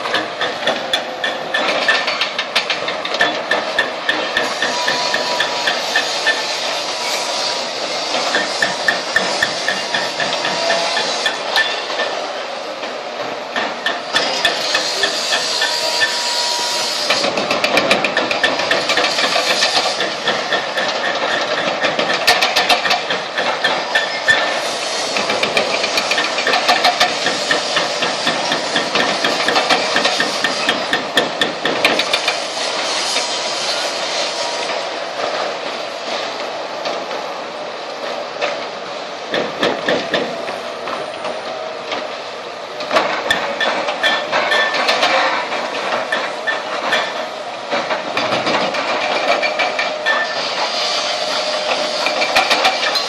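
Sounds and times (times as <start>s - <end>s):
excavator rattling strikes on concrete: 0.0s - 6.5s, 8.1s - 12.2s, 13.6s - 16.2s, 17.1s - 32.4s, 39.3s - 42.1s, 42.8s - 50.4s, 51.6s - 53.0s.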